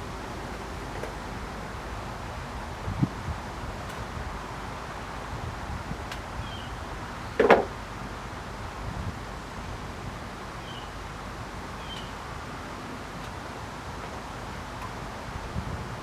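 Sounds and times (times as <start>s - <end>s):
wind noise on microphone: 0.0s - 7.3s, 8.6s - 10.2s, 15.1s - 16.0s.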